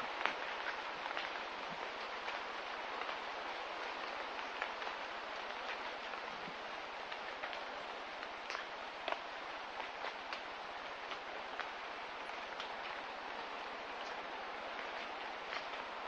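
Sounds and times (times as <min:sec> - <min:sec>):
rain hiss: 0:00.0 - 0:16.0
raindrops ticking: 0:00.0 - 0:16.0.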